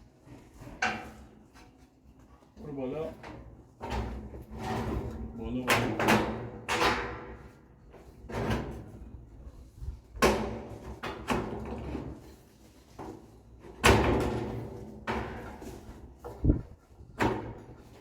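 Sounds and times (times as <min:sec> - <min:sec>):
metal fence sheets banging and rattling: 0:03.4 - 0:07.6, 0:13.6 - 0:16.1.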